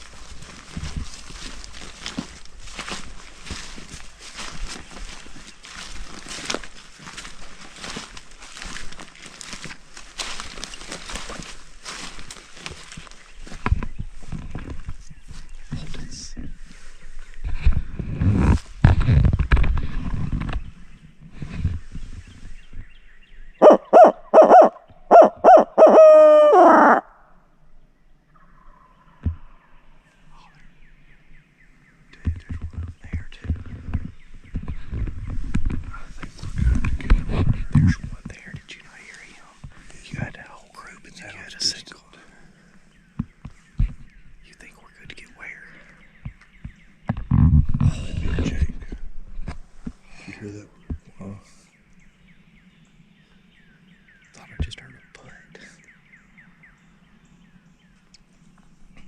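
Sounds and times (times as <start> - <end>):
footsteps crunching dry leaves: 0.0 - 22.6, 34.0 - 41.5
owl call hoots: 23.6 - 27.3.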